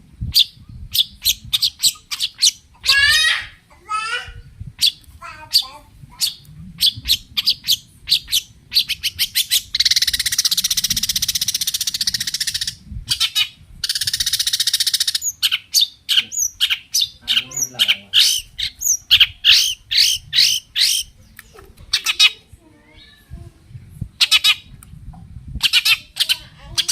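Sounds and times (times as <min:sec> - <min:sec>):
shrike singing: 0:00.4 - 0:22.4
harsh bird rattles: 0:07.1 - 0:15.6.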